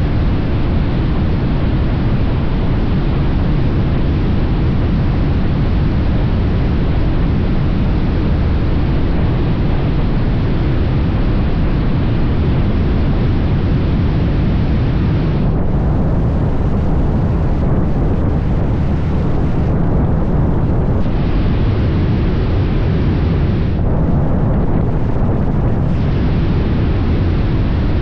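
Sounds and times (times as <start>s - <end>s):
wind and road noise: 0.0s - 28.0s.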